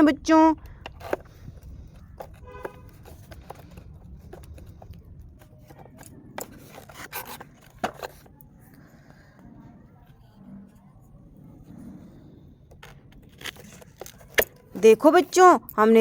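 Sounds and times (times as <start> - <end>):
plastic parts clicking and scraping: 0.0 - 15.6
plastic squeak: 5.4 - 8.4.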